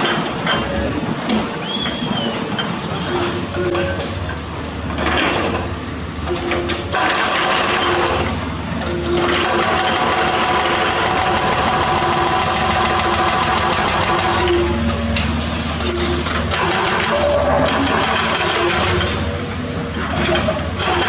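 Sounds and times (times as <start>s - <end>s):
excavator diesel engine under load: 0.0s - 21.0s
rough machine noise bursts: 2.5s - 21.0s
held hydraulic whine: 11.1s - 20.7s.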